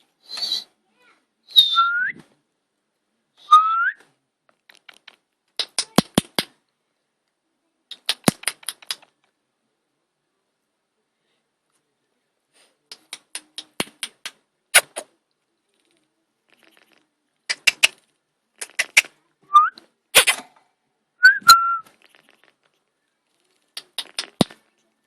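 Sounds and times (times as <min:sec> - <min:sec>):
sharp clicks and taps: 0:04.5 - 0:06.6, 0:07.9 - 0:09.3, 0:12.9 - 0:15.1, 0:16.5 - 0:18.0, 0:18.6 - 0:19.1, 0:23.8 - 0:24.8
parrot whistling: 0:21.2 - 0:21.9.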